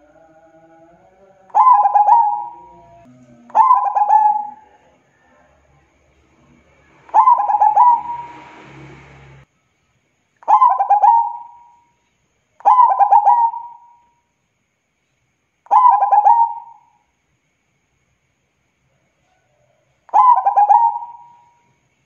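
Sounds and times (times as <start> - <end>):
dove cooing: 1.5 - 4.9, 7.1 - 8.4, 10.5 - 11.7, 12.6 - 14.0, 15.7 - 16.9, 20.1 - 21.5.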